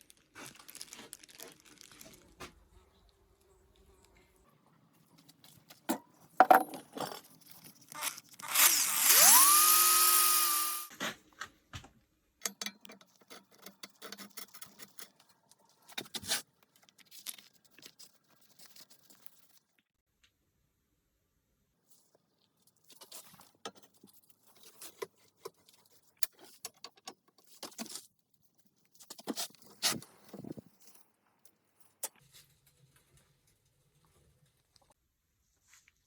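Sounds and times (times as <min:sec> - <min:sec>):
parts clicking and knocking: 0:05.7 - 0:07.3, 0:12.4 - 0:16.3, 0:23.3 - 0:28.0
power tool whining: 0:08.0 - 0:10.9.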